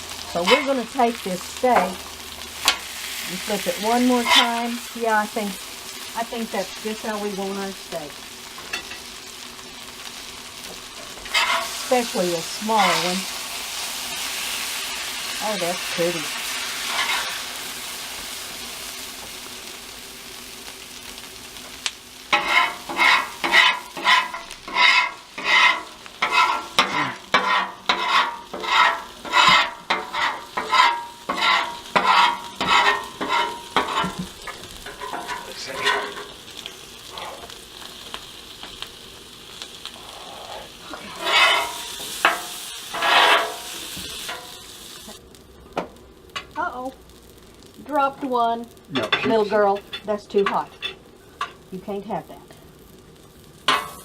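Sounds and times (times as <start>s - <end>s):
food sizzling on a griddle: 0.0s - 54.0s
metal spatula scraping griddle: 0.2s - 2.0s, 2.6s - 5.0s, 10.6s - 13.6s, 14.2s - 17.8s, 22.3s - 37.6s, 40.0s - 44.7s.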